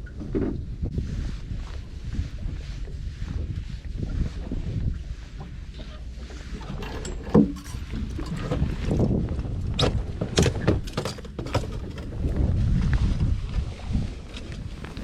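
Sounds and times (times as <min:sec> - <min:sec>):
water and wind rumbling: 0:00.0 - 0:15.0
knocks and clicks on boat: 0:05.3 - 0:12.6.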